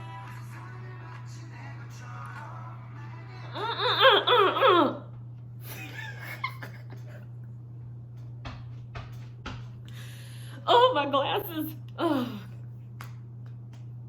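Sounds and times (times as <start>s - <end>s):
soft vocal sound: 0.0s - 5.0s
low hum: 0.0s - 14.0s
woman giggling: 5.6s - 7.3s.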